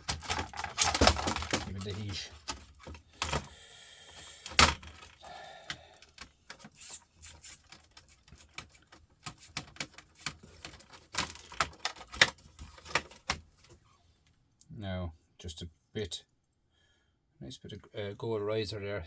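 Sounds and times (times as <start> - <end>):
laptop parts clicking and clattering: 0.0 - 13.9.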